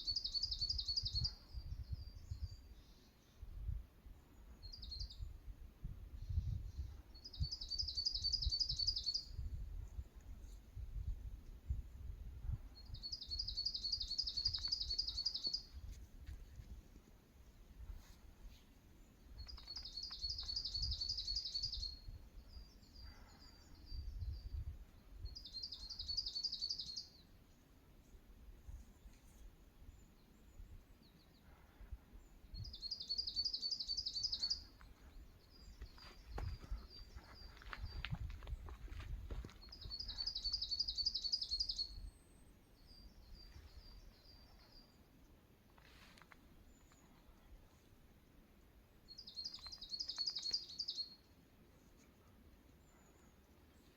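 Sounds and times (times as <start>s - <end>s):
songbird singing: 0.0s - 5.5s, 6.1s - 11.0s, 12.5s - 16.0s, 17.5s - 27.8s, 28.7s - 53.9s
low wind rumble: 3.4s - 13.5s, 34.6s - 40.2s.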